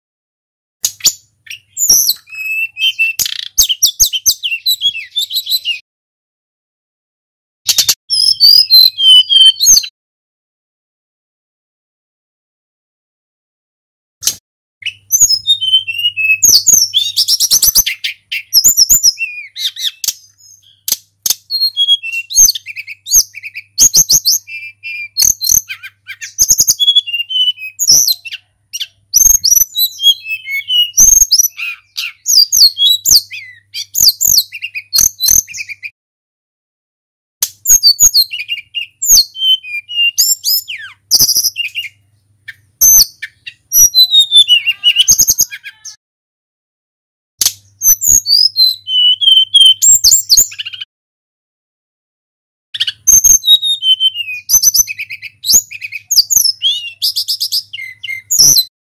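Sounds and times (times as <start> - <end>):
bird singing high chirps and trills: 0.8 - 5.8, 7.7 - 9.9, 14.8 - 36.0, 37.5 - 46.0, 47.4 - 50.9, 52.8 - 58.7.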